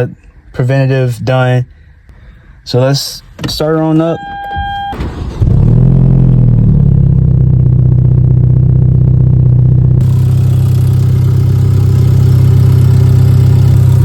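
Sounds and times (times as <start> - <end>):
car engine starting and idling: 3.5 - 14.0.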